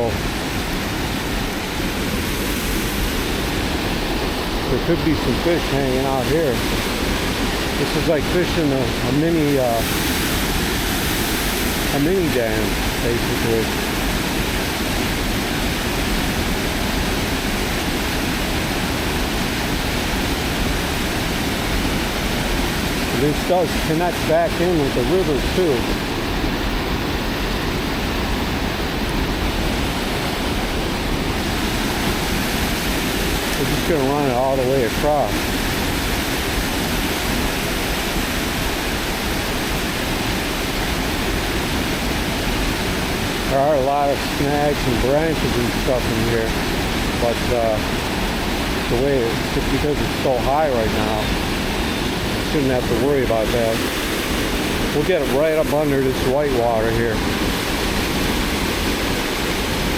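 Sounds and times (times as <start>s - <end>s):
water pouring over dam: 28.8s - 59.9s.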